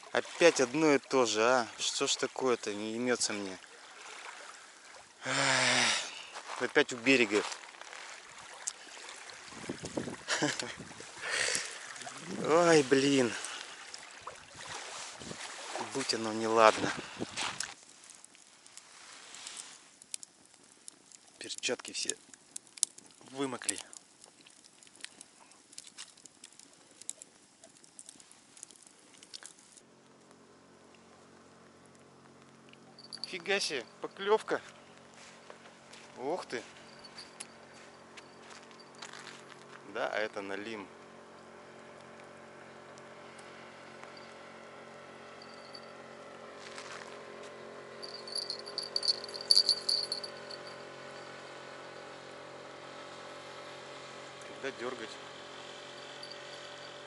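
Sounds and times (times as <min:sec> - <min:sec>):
faint hiss: 0:14.8 - 0:24.2
raindrops ticking: 0:19.6 - 0:29.8, 0:48.0 - 0:50.8
bite-alarm bell jingling: 0:33.0 - 0:34.1, 0:36.7 - 0:39.2, 0:45.4 - 0:46.0, 0:48.0 - 0:51.4, 0:55.9 - 0:57.0.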